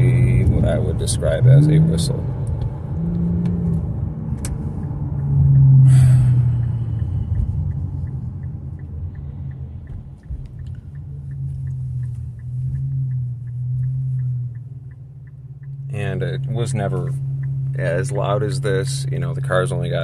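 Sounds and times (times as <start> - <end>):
car engine exhaust drone: 0.0 - 20.0
light ticking: 4.4 - 20.0.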